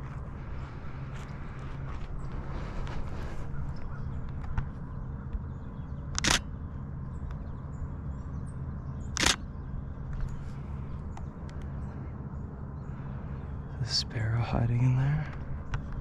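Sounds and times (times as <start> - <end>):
low steady rumble: 0.0 - 16.0
camera shutter click: 6.2 - 6.5, 9.2 - 9.4.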